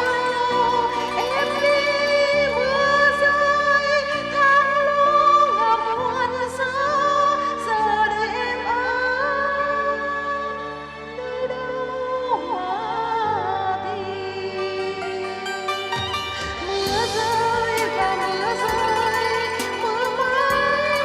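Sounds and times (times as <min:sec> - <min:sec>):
person singing with vibrato: 0:00.0 - 0:21.0
sustained accompaniment chords: 0:13.8 - 0:21.0.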